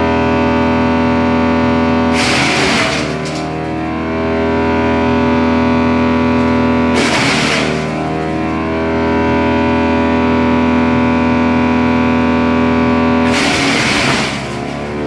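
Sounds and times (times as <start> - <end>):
wood chipper droning: 0.0 - 15.0
harsh bursts of chipping: 2.1 - 4.2, 6.4 - 9.0, 13.2 - 15.0.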